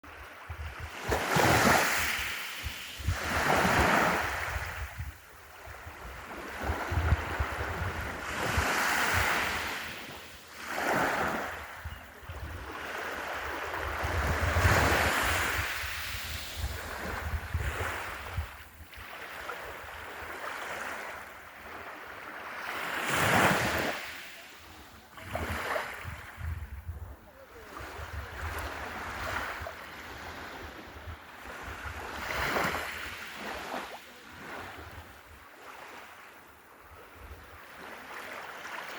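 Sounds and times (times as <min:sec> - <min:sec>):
sea waves breaking on beach: 0:00.0 - 0:26.4, 0:27.6 - 0:36.4
wind buffeting microphone: 0:00.4 - 0:09.8, 0:10.9 - 0:19.1, 0:25.2 - 0:33.0.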